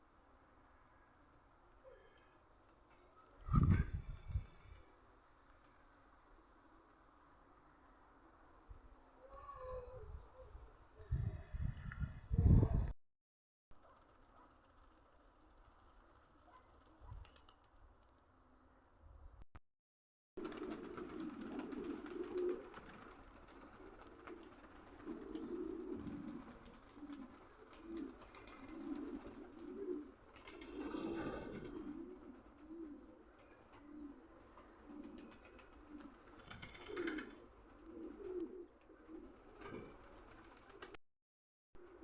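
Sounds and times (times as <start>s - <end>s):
pigeons cooing: 20.4s - 40.9s.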